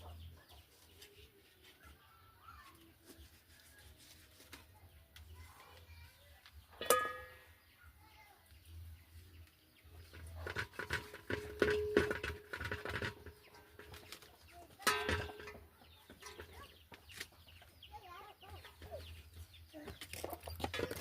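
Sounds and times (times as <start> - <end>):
chickens clucking: 0.0 - 1.7, 8.9 - 21.0.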